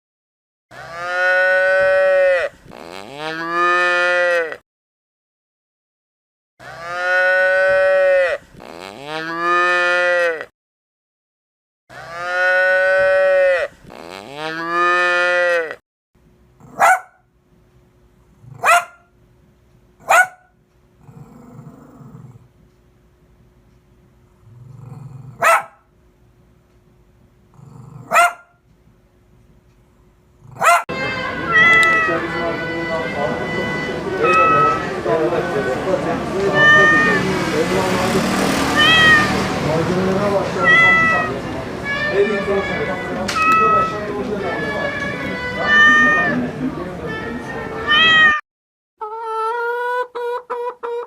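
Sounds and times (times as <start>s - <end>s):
cow mooing: 0.7s - 4.6s, 6.6s - 10.5s, 11.9s - 15.8s, 21.0s - 22.4s, 31.5s - 32.3s
short sharp barks: 16.7s - 17.2s, 18.6s - 19.0s, 20.0s - 20.5s, 25.4s - 25.8s, 28.1s - 28.5s, 30.6s - 30.8s.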